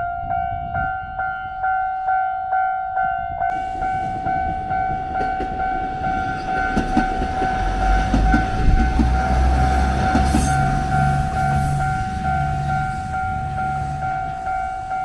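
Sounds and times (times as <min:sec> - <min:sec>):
level-crossing warning bell: 0:00.0 - 0:15.0
train low rumble: 0:00.0 - 0:15.0
train wheels knocking over rail joints: 0:03.5 - 0:14.9.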